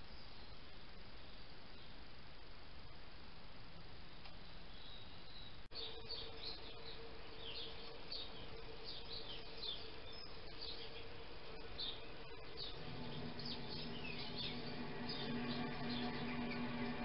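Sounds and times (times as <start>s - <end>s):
faint steady hum and hiss: 0.0s - 17.0s
birds chirping: 4.4s - 17.0s.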